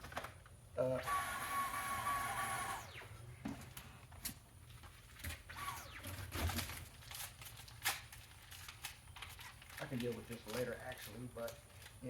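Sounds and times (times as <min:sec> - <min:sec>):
vacuum motor whining down: 0:01.0 - 0:03.1.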